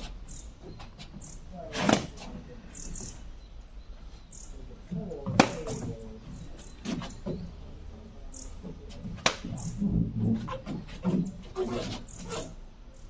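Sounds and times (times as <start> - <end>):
birds calling: 0.0 - 13.0
sharp knocks: 9.0 - 11.4.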